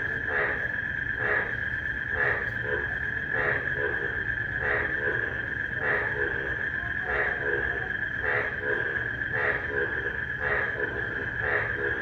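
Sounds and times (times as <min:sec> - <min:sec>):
frogs croaking: 0:00.0 - 0:12.0.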